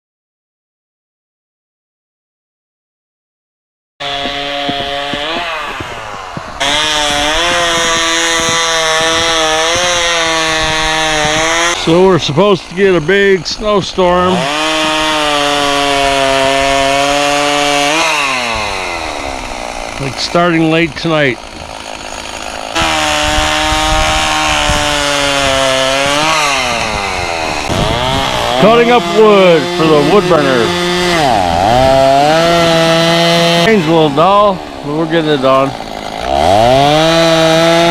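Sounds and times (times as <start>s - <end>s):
chainsaw cutting wood: 4.0s - 37.9s.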